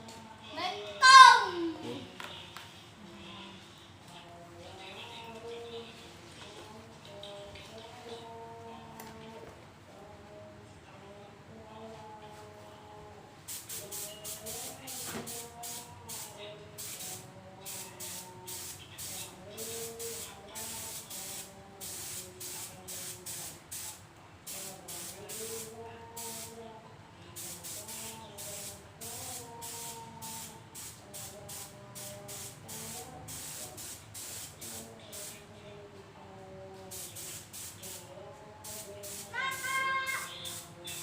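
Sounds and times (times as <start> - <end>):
spray paint can bursts: 13.5 - 26.6, 27.4 - 35.4, 36.9 - 41.0.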